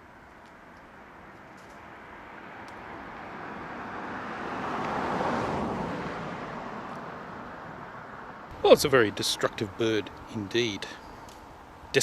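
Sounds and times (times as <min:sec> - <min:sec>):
car driving past: 0:02.3 - 0:10.3.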